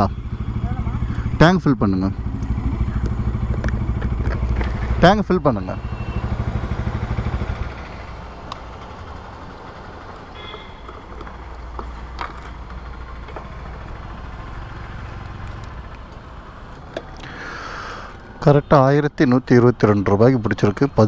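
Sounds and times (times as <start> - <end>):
steady low hum: 0.0 - 5.0
motorcycle engine idling: 0.0 - 18.2.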